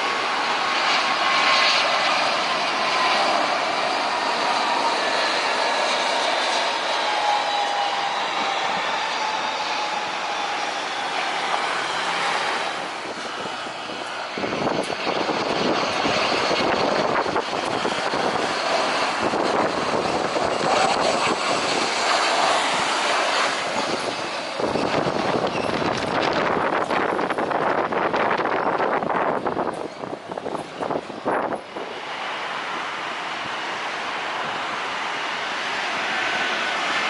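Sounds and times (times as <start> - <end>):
falling whine: 0.0 - 37.0
jet airliner engine noise: 0.0 - 37.0
wind buffeting microphone: 0.0 - 37.0.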